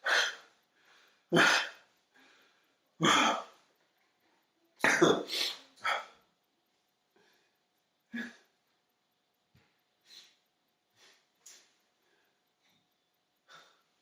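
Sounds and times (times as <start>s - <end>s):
person coughing: 1.3s - 1.8s, 3.0s - 3.5s, 4.8s - 6.2s.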